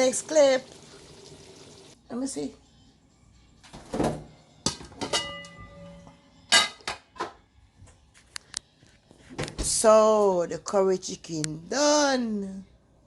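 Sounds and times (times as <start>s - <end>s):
metal cookware clinking: 4.7s - 7.0s.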